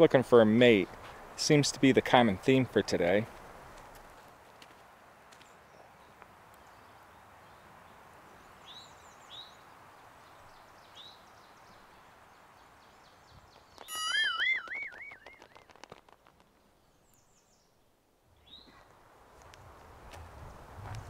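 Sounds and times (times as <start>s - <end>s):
faint outdoor background: 0.0s - 21.0s
songbirds calling: 5.4s - 15.9s, 16.5s - 19.0s
quick run of clicks: 13.5s - 16.6s.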